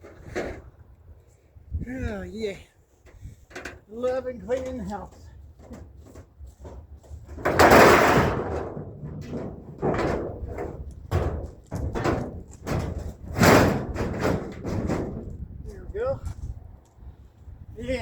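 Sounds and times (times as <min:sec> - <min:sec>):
scrap metal crashing onto truck: 0:07.3 - 0:15.3.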